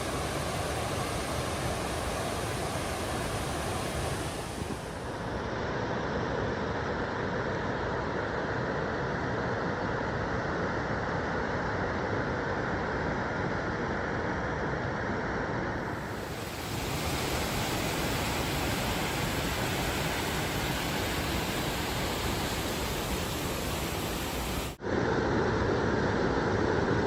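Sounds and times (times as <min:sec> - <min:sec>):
rushing water: 0:00.0 - 0:05.3, 0:15.9 - 0:24.8.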